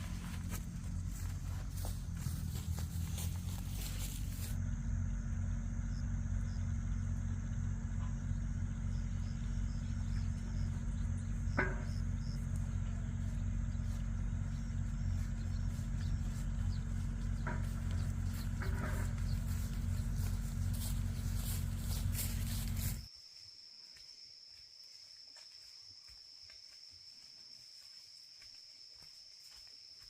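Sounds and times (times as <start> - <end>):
machine humming: 0.0 - 23.1.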